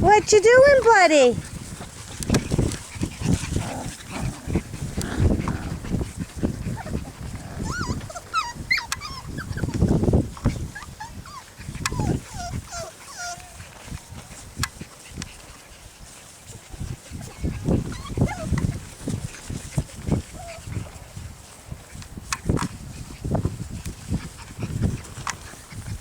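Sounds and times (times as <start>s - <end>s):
low rustling and thumping: 0.9s - 26.0s
puppies whimpering: 2.4s - 14.6s, 16.4s - 20.8s.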